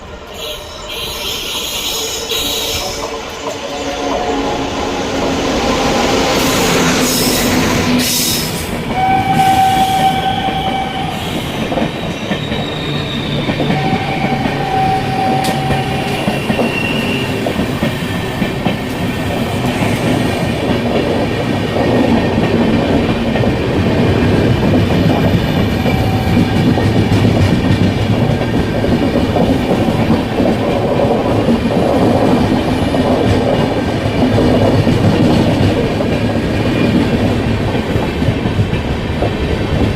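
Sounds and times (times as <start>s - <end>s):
train rumbling over rails: 0.0s - 39.9s
train horn blasts: 0.3s - 8.1s, 8.9s - 11.7s, 13.7s - 17.4s, 25.8s - 26.8s.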